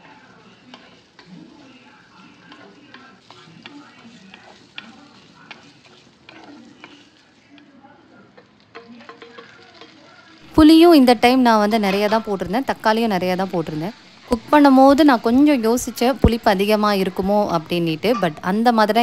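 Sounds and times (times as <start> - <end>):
aromatics sizzling in oil: 0.0 - 19.0
wooden spatula tapping pot: 0.7 - 1.3, 2.4 - 7.7, 8.4 - 10.0.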